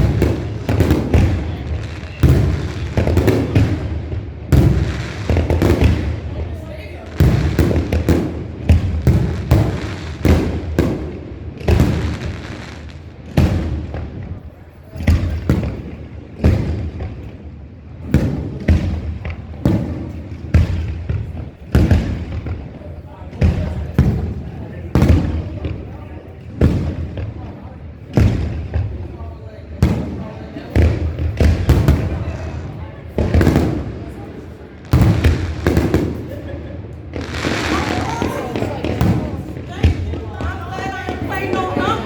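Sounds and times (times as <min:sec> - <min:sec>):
fireworks booming: 0:00.0 - 0:42.0
firework shells bursting: 0:34.8 - 0:42.0.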